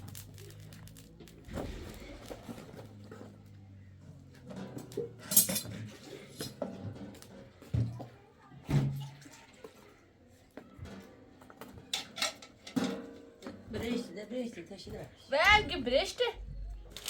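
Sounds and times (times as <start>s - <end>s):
dishes and cutlery clattering: 4.4s - 8.0s, 10.8s - 14.1s.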